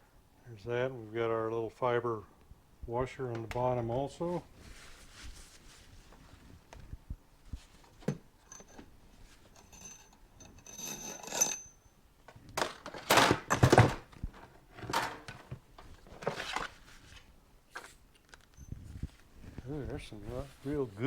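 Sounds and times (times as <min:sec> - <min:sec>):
metal parts rattling and scraping: 0:09.5 - 0:11.8, 0:12.6 - 0:15.5
metal ringing clink: 0:09.6 - 0:12.0.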